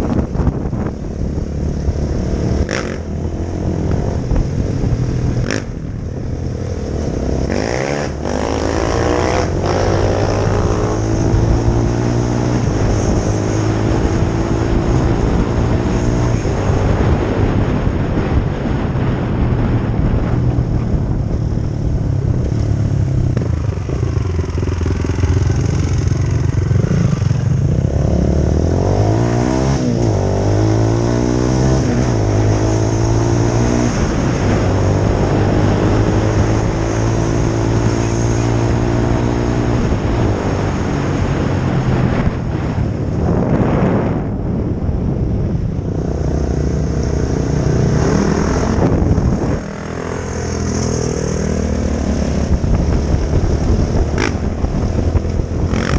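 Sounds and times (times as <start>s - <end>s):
dirt bike engine revving: 2.4s - 3.8s, 6.8s - 17.1s, 46.6s - 54.6s, 55.6s - 55.9s.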